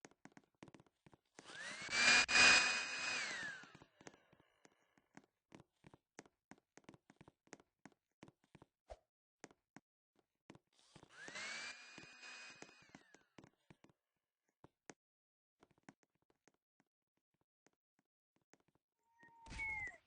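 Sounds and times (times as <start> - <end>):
hair dryer whining: 1.5 - 3.8, 11.1 - 13.0.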